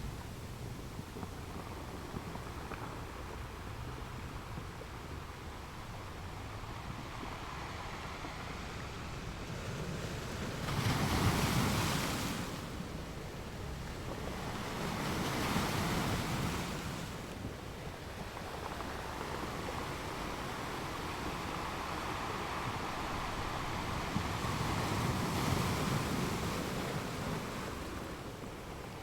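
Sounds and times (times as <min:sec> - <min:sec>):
waves breaking: 0:09.8 - 0:29.0.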